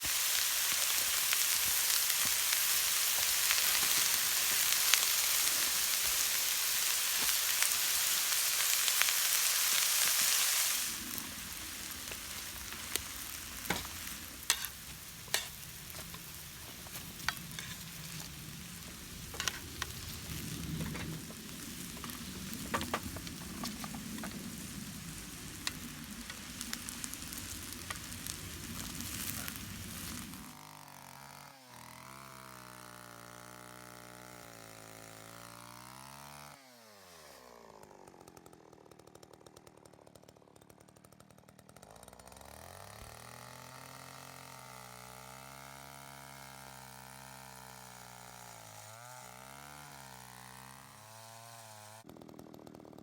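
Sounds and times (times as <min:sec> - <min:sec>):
fire crackling: 0:00.0 - 0:30.6
noodles sizzling: 0:00.0 - 0:30.9.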